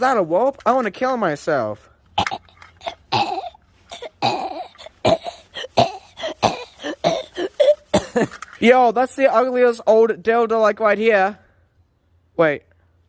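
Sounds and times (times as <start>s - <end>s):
person making rough cough-like noises: 2.2s - 8.6s.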